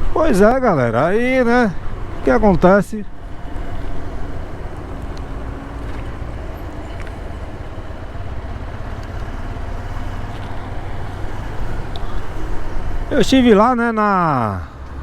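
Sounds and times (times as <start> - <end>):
vehicle engine and road rumble: 0.0 - 15.0
faint clicks: 5.0 - 7.5.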